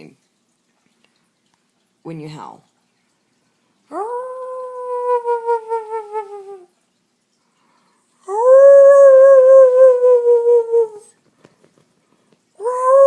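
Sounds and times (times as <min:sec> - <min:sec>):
person howling like a dog: 0:03.9 - 0:06.7, 0:08.2 - 0:11.1, 0:12.6 - 0:13.0.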